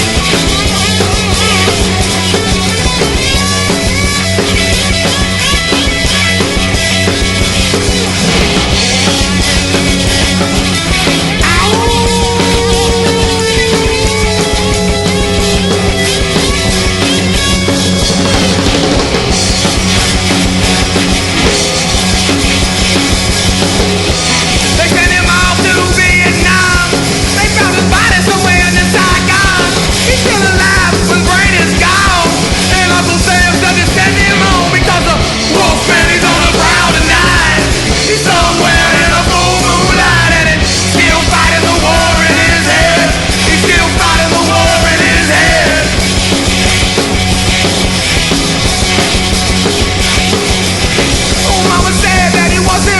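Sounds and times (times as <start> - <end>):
punk rock song: 0.0 - 52.9
wavering vocal line: 11.4 - 16.4, 24.8 - 46.0.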